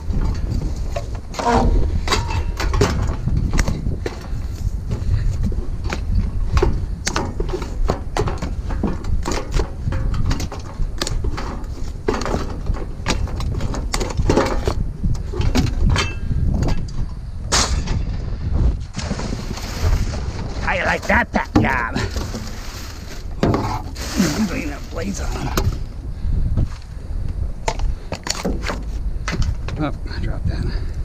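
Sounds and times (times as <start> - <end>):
scrap metal clattering: 19.0 - 25.8.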